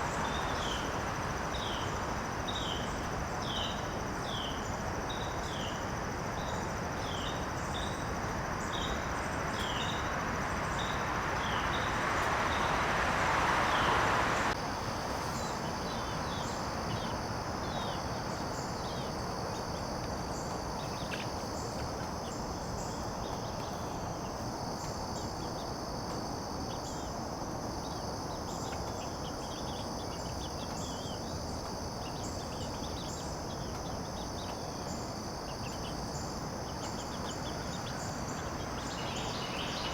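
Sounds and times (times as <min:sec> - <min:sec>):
insects trilling: 0:00.0 - 0:39.9
rushing hiss: 0:09.8 - 0:16.0.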